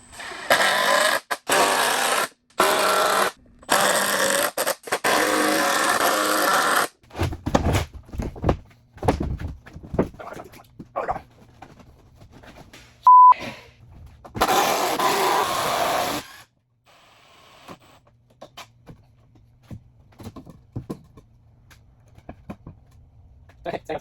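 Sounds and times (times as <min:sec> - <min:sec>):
loud electronic beep: 0:13.1 - 0:13.4.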